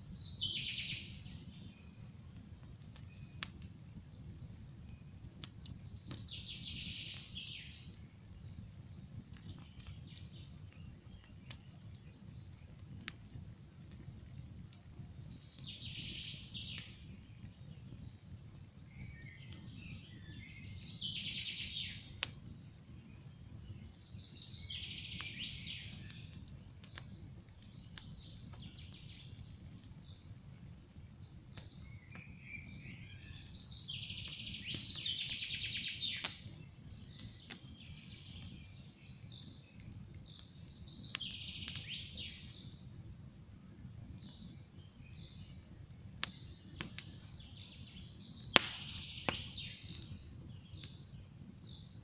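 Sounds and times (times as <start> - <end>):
campfire crackling and popping: 0.0 - 52.0
songbird singing: 0.0 - 52.0.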